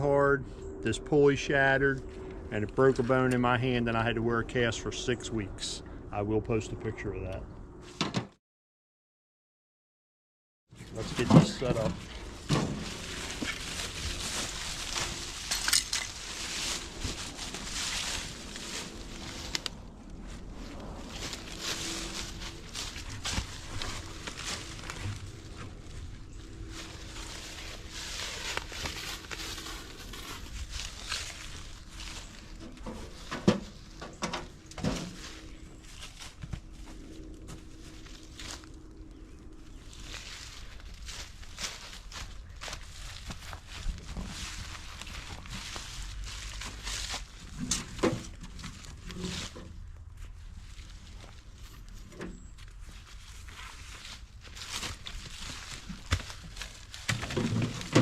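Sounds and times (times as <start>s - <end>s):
straps rustling: 10.9s - 19.8s.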